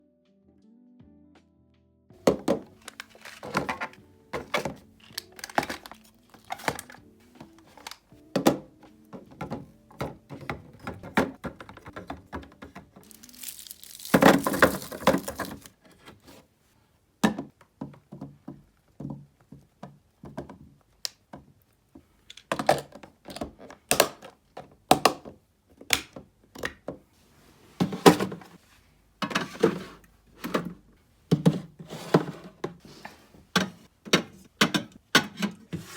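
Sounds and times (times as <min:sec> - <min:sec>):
items knocking in a fridge: 0:02.2 - 0:07.6, 0:08.3 - 0:15.7, 0:27.8 - 0:28.6, 0:29.2 - 0:32.8
rustling: 0:13.0 - 0:16.4.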